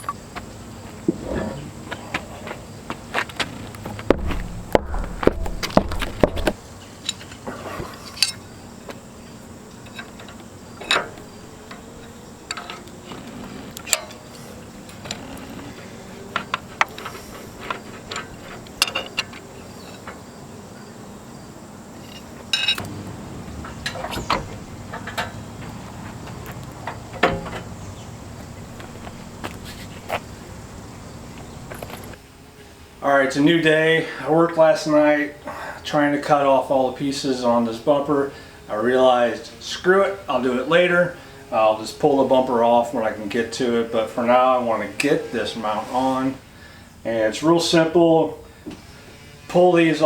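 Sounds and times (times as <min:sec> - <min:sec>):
background hum: 0:00.0 - 0:50.0
hand tools clinking on steel: 0:08.0 - 0:08.5, 0:16.8 - 0:20.0, 0:22.0 - 0:23.0.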